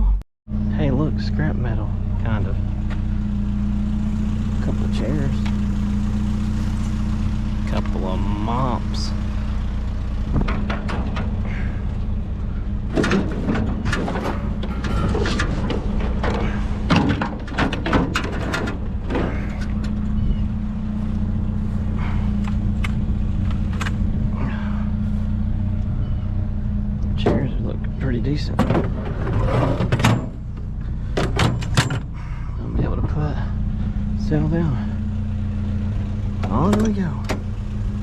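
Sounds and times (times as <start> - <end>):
vehicle engine idling: 0.0 - 38.0
irregular knocks and rattles: 10.2 - 12.2, 12.8 - 20.2, 28.5 - 32.2.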